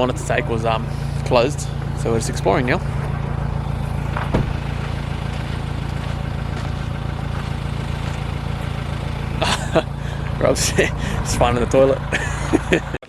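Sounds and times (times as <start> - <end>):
engine running steadily: 0.0 - 13.0
short knock: 4.2 - 4.6.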